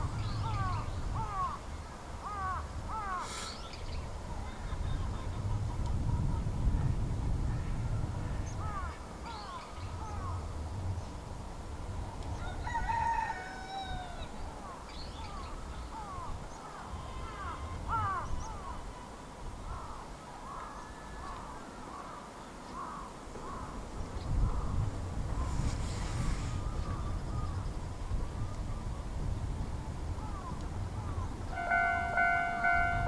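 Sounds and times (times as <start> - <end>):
bird call with falling end: 30.2 - 33.0.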